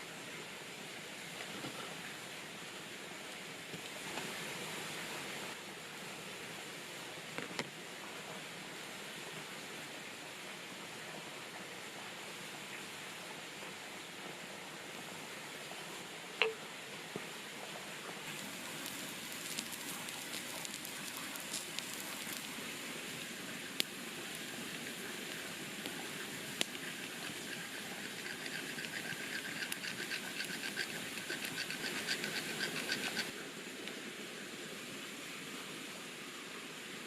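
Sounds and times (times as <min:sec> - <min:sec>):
campfire crackling and popping: 0:18.3 - 0:33.4.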